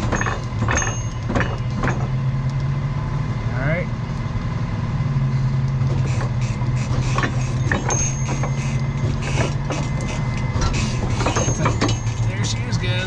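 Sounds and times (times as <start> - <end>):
metallic clicks and clanks: 0.0 - 2.1, 5.9 - 12.7
truck engine idling: 0.0 - 13.0.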